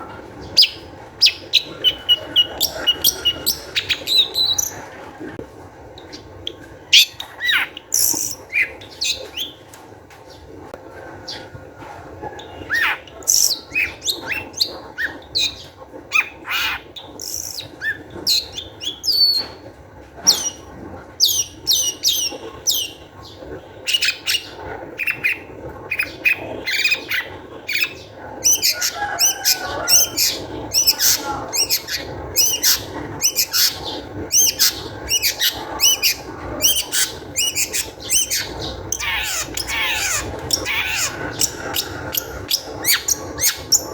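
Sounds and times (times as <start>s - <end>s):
bird harsh chattering: 0.6s - 4.8s, 7.0s - 9.5s, 12.7s - 15.6s, 16.2s - 19.4s, 23.8s - 43.9s.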